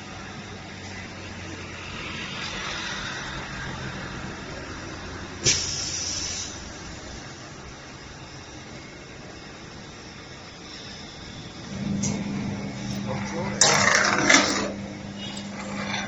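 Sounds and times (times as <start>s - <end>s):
short hiss: 5.4s - 6.6s
rising mechanical noise: 6.6s - 16.0s
motor hum: 8.2s - 16.0s.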